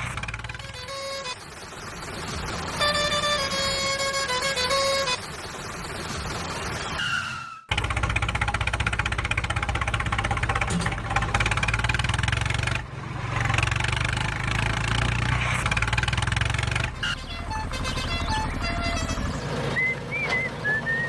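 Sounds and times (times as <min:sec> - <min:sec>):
tractor engine running: 0:00.0 - 0:07.0, 0:07.7 - 0:21.0
falling whine: 0:00.0 - 0:08.0.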